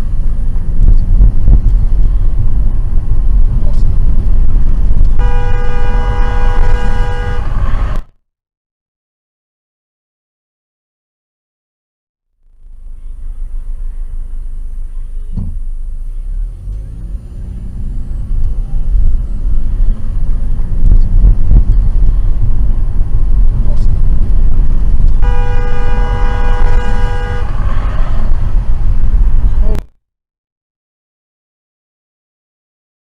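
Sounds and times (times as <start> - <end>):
car driving rumble: 0.0 - 8.1, 12.4 - 29.9
car horn: 5.2 - 8.1, 25.2 - 28.6.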